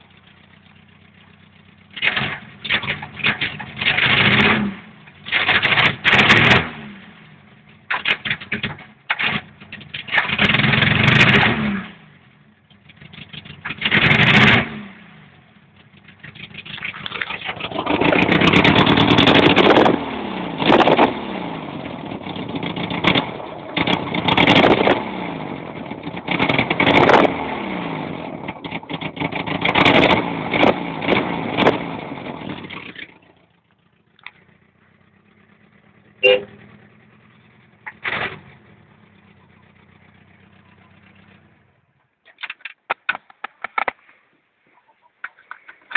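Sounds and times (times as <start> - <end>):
engine revving in blips: 1.9 - 12.2, 12.8 - 41.7.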